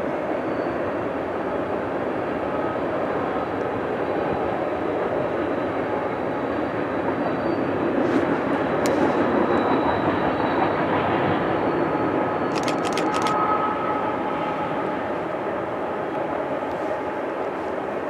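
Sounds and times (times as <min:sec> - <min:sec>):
train wheels rumbling on rail: 0:00.0 - 0:18.0
sharp clicks of train wheels: 0:12.5 - 0:13.6.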